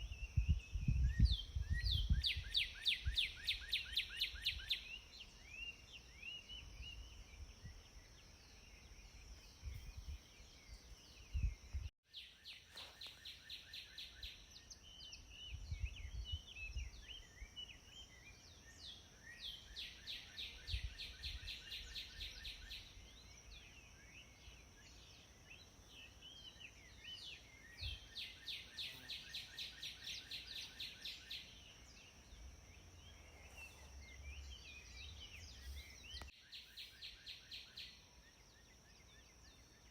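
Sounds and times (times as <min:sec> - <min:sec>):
bird chirps: 0:00.0 - 0:39.9
songbird trills: 0:00.0 - 0:39.9.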